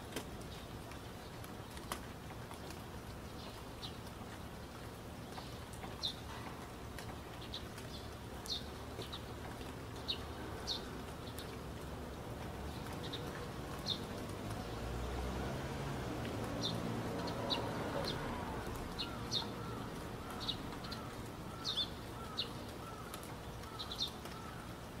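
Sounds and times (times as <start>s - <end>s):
birds chirping: 16.6s - 24.8s.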